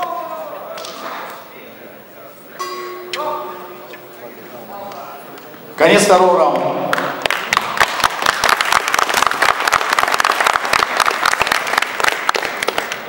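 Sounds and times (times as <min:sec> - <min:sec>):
crowd applauding: 0:06.9 - 0:13.0.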